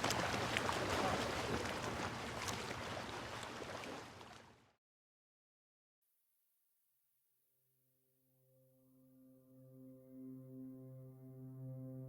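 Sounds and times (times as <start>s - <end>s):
boat engine hum: 0.0s - 4.5s
rush of water: 0.0s - 4.6s
wind: 0.0s - 4.7s.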